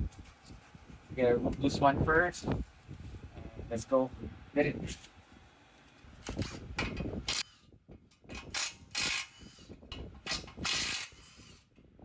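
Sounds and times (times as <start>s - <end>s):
ratchet wrench clicking: 8.4s - 9.6s, 10.3s - 11.5s.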